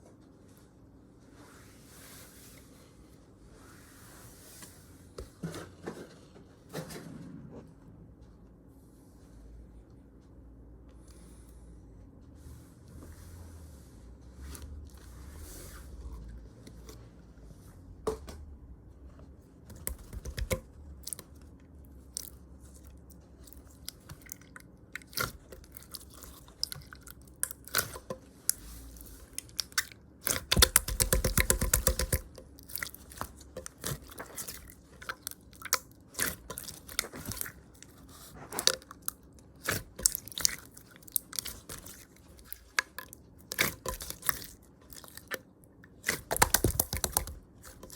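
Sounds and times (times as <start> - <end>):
candy chewing mouth clicks: 19.7 - 47.9.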